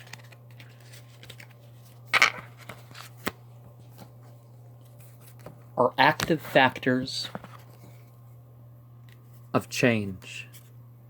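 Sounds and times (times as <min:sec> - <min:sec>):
cards rustling: 0:00.0 - 0:04.2
low electrical hum: 0:00.0 - 0:11.0.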